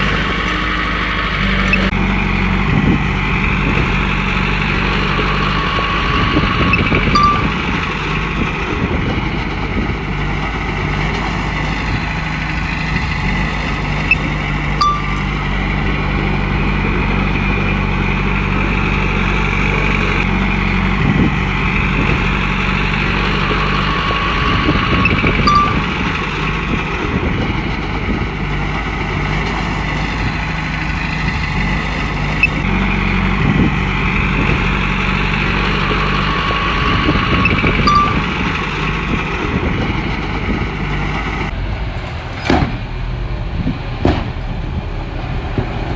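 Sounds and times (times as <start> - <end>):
machine squeaks and clicks: 0.0 - 2.0, 5.4 - 8.4, 14.0 - 15.5, 24.0 - 26.5, 32.3 - 32.7, 37.1 - 38.9
bulldozer diesel engine: 0.0 - 45.9.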